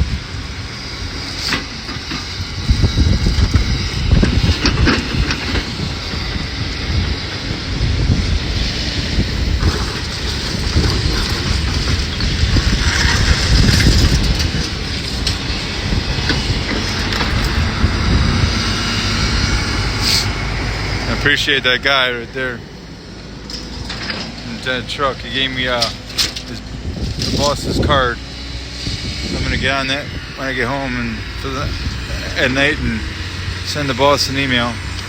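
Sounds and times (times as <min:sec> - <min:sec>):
excavator engine and tracks rumbling: 0:00.0 - 0:35.0
debris clanking and crunching: 0:01.1 - 0:28.1.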